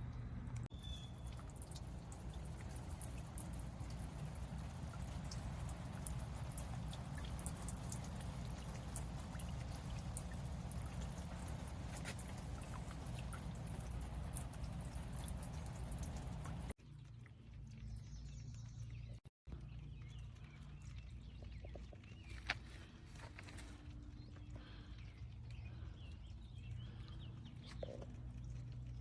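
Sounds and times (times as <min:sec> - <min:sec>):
fountain water splashing: 0:00.8 - 0:16.8.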